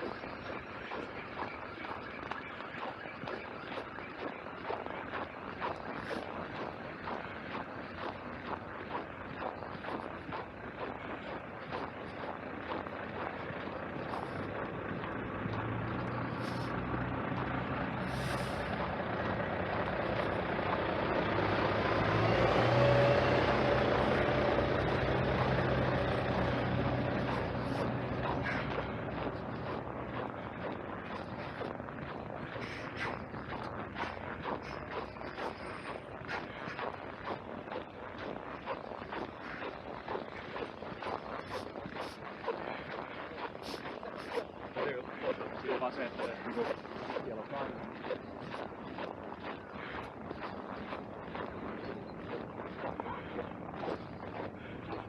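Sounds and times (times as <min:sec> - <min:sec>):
footsteps crunching on snow: 0:00.0 - 0:55.0
heavy vehicle passing: 0:13.8 - 0:36.8.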